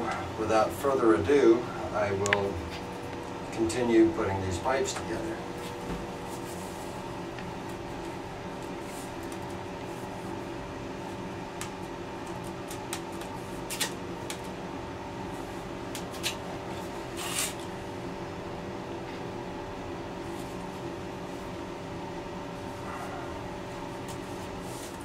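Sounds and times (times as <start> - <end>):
steady machine hum: 0.0 - 25.0.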